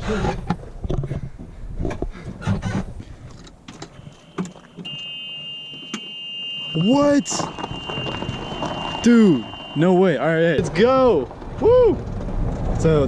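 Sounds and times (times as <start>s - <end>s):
high-pitched electronic tone: 4.0s - 10.2s.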